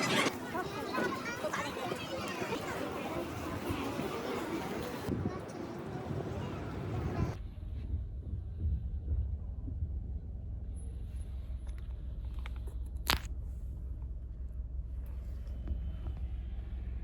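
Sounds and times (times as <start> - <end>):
low steady rumble: 7.0 - 17.0.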